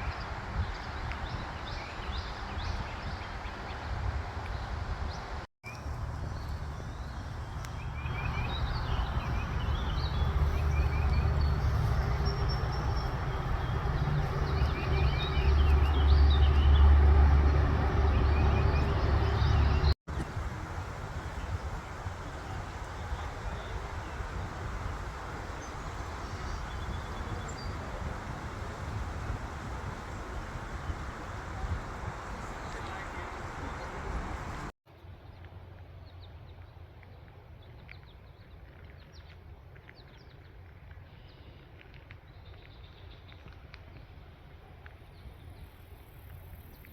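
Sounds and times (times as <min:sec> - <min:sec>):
birds chirping: 0:05.7 - 0:20.4, 0:21.1 - 0:34.7
loud low rumble: 0:05.8 - 0:20.6.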